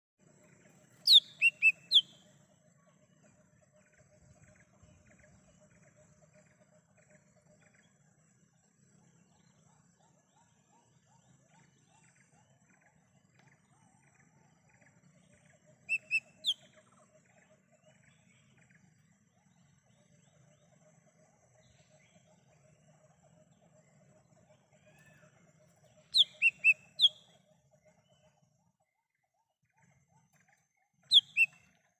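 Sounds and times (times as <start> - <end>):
birds chirping: 0.7 - 2.3, 15.9 - 16.6, 25.7 - 27.3, 31.1 - 31.7
bird whistled notes: 1.0 - 2.2, 15.9 - 16.6, 26.1 - 27.2, 31.1 - 31.6.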